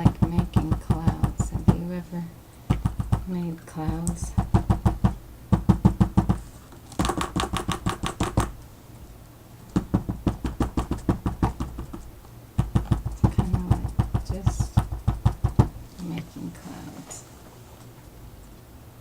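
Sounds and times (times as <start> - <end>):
paint dabbing taps on paper: 0.0 - 1.9, 2.7 - 6.4, 9.8 - 15.8.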